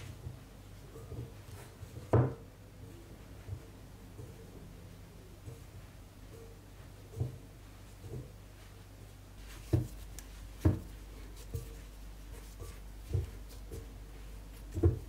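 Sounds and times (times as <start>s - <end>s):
flour rubbing: 7.8s - 15.0s.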